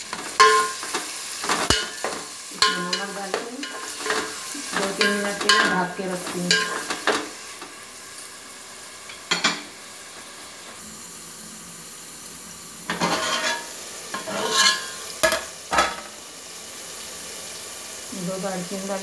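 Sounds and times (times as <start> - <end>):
onions frying in oil: 0.0 - 19.0
metal pot lid clanking: 0.3 - 5.8, 12.9 - 16.1.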